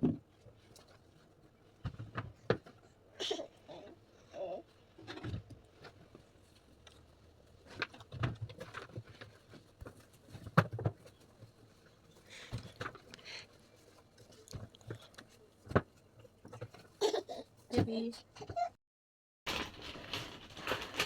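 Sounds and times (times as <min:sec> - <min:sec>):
packaging rustle: 0:19.5 - 0:21.0.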